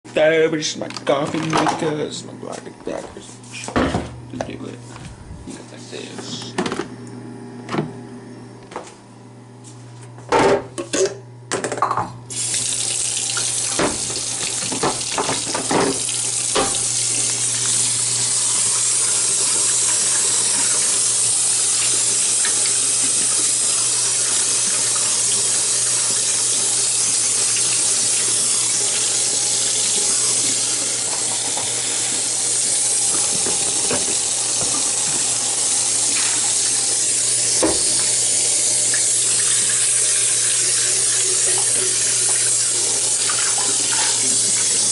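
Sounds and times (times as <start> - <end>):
water running: 12.2 - 44.9.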